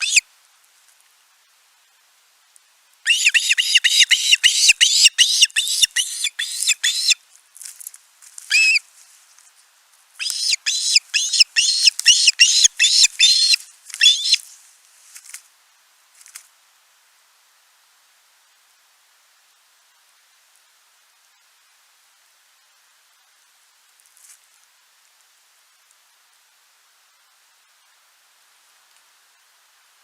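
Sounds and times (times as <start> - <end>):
osprey whistled chirps: 0.0 - 0.2, 3.1 - 7.2, 8.5 - 8.8, 10.2 - 14.4.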